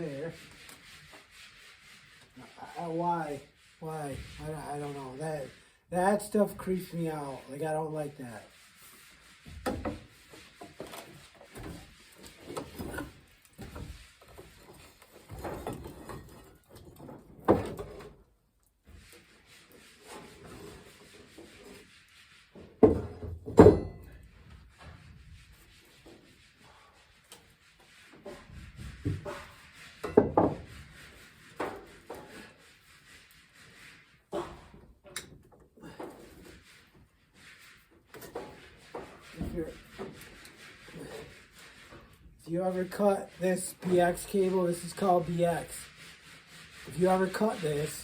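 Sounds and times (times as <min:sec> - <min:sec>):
wiring scraping and rubbing: 0:24.6 - 0:48.0
cords rubbing and scraping: 0:38.5 - 0:48.0.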